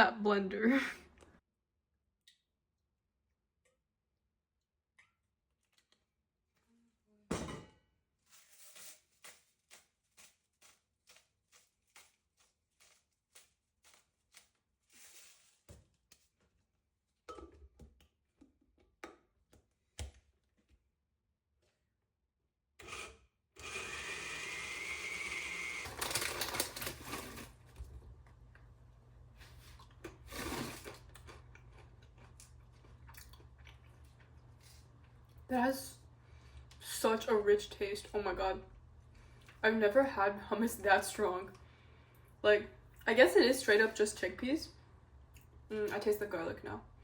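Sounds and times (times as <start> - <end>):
electric blender running: 22.8 - 27.6.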